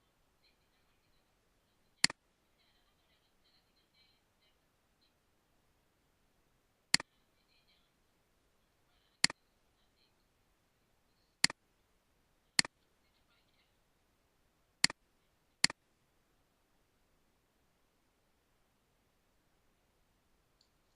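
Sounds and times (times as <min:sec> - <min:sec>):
computer mouse clicks: 0:11.4 - 0:11.6, 0:15.6 - 0:15.8
faint light ticking: 0:20.4 - 0:20.9.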